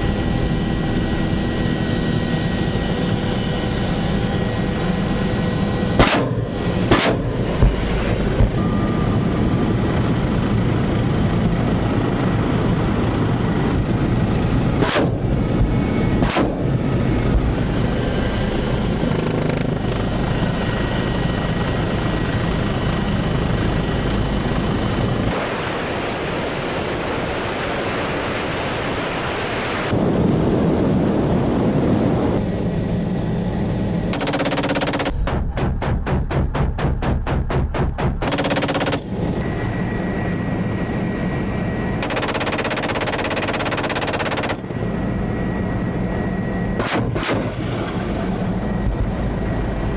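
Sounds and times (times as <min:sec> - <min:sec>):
helicopter turbine and rotor: 0:00.0 - 0:49.9
sharp cracks: 0:06.0 - 0:08.6, 0:34.1 - 0:39.1, 0:42.0 - 0:44.7, 0:46.8 - 0:48.0.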